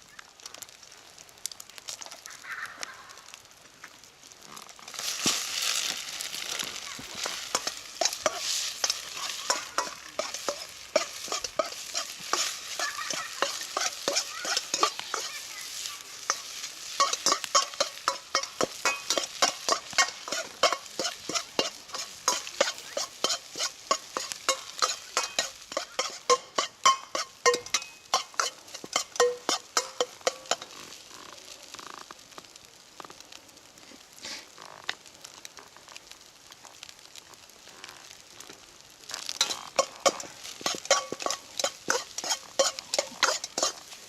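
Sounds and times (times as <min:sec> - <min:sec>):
rice sizzling: 0:00.0 - 0:44.0
metal spatula scraping pan: 0:07.1 - 0:31.0, 0:39.2 - 0:44.0.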